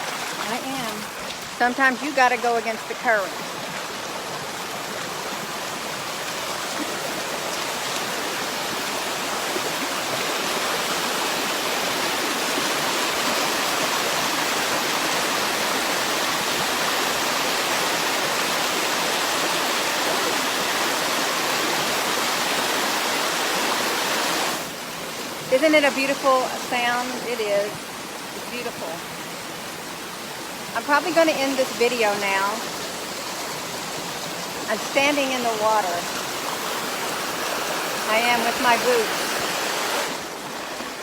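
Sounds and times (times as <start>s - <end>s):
creek water rushing: 0.0s - 41.0s.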